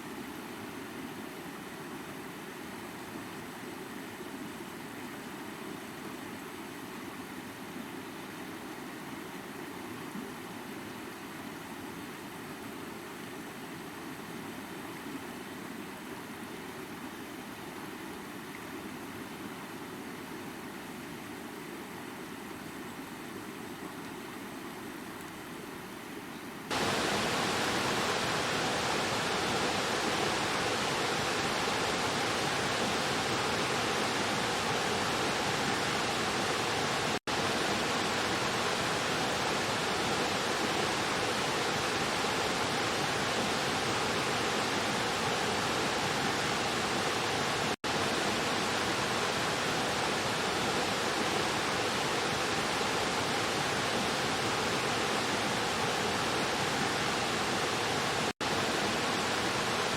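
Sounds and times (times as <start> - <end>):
stream splashing over rocks: 26.7 - 59.9.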